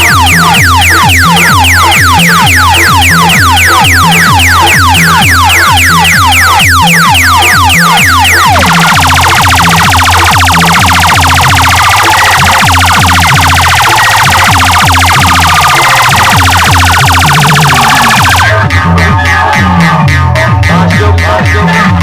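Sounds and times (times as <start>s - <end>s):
siren-like falling sweep effect: 0.0s - 18.8s
bass-heavy dance track: 0.0s - 22.0s.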